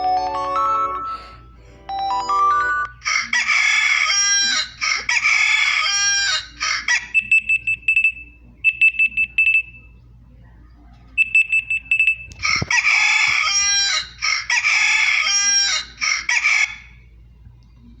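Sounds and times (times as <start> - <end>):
recorded rooster crowing: 3.0 - 7.0, 12.4 - 17.0.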